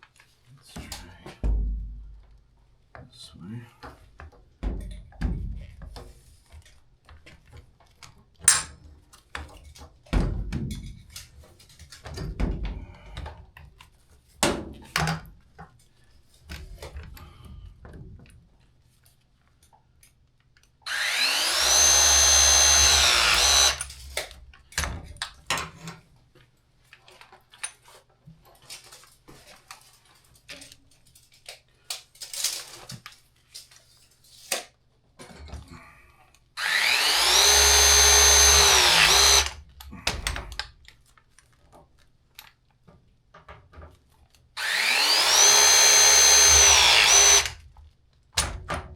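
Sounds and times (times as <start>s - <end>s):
power drill motor whine: 20.9s - 23.9s, 36.6s - 39.6s, 44.6s - 47.6s.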